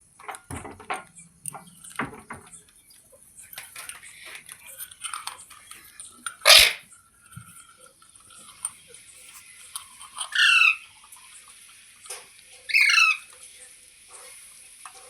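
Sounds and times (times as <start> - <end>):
parrot calls and chatter: 0.2 - 15.0
parrot harsh squawk: 6.4 - 6.8, 10.3 - 10.9, 12.7 - 13.3.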